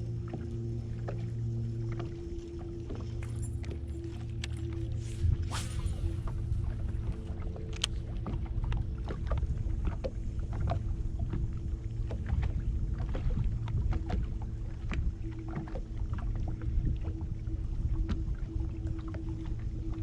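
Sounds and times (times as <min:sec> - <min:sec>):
faint steady hum: 0:00.0 - 0:20.0
steady low rumble: 0:00.0 - 0:20.0
small clicks and ticks: 0:07.5 - 0:08.8.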